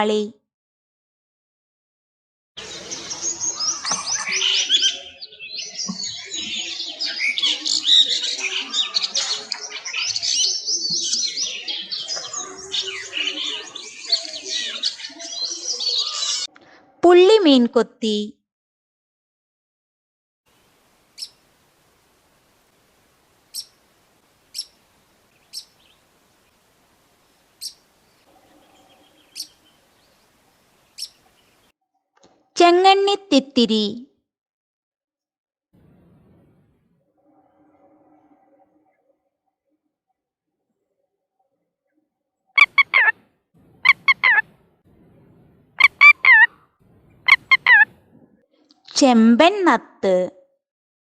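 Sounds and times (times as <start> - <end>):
lapwing calling: 21.1 - 21.4, 23.4 - 23.8, 24.5 - 26.6, 27.3 - 31.7, 42.6 - 44.5, 45.8 - 48.1
kingfisher calling: 23.5 - 23.8, 24.5 - 24.8, 28.6 - 29.9, 42.6 - 43.1, 43.8 - 44.4, 45.8 - 47.9.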